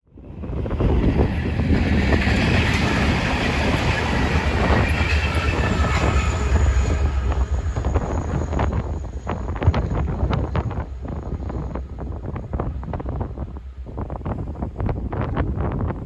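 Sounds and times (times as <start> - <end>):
locomotives rumbling on rails: 0.1 - 16.0
high-pitched wheel squeal: 2.0 - 12.3.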